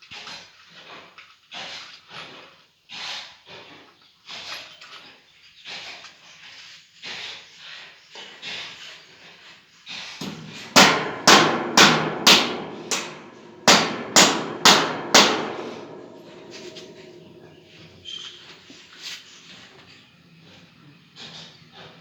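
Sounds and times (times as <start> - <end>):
hammer strikes ringing: 10.2 - 17.6.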